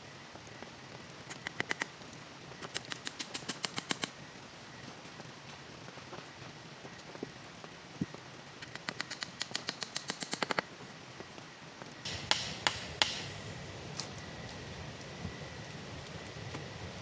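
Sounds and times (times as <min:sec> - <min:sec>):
rain hiss: 0:00.0 - 0:17.0
quick light taps: 0:08.6 - 0:10.6, 0:12.1 - 0:13.4
sharp knocks: 0:12.1 - 0:13.5.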